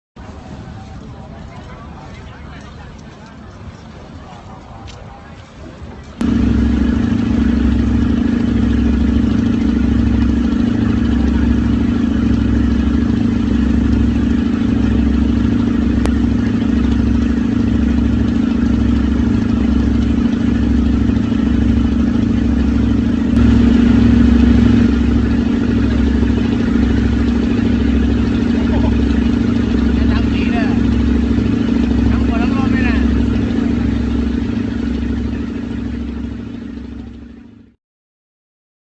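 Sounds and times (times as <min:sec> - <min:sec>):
motor droning: 0:06.0 - 0:37.7
deep pulse: 0:06.2 - 0:37.8.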